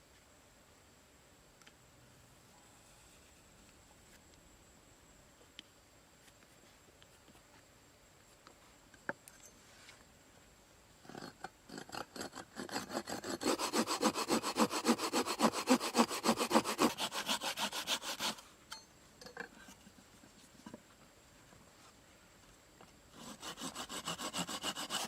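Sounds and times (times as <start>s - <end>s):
hand saw cutting wood: 11.2s - 18.4s, 23.1s - 25.0s.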